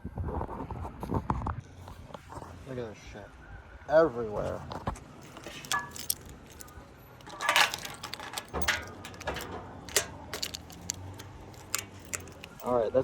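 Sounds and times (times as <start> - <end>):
clicks and metallic clinks: 5.2 - 12.8.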